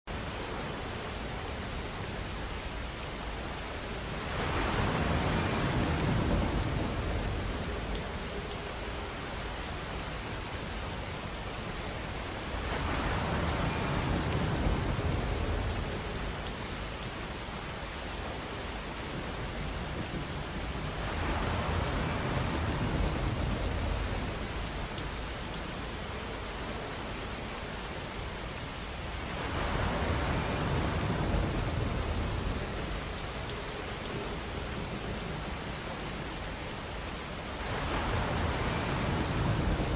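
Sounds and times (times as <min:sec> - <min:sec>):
rain on a van roof: 0:00.1 - 0:39.9.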